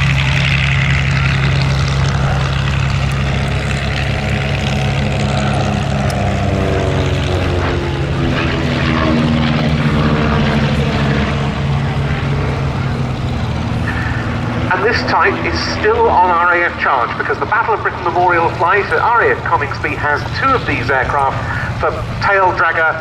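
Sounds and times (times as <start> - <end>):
propeller aircraft droning overhead: 0.0 - 23.0.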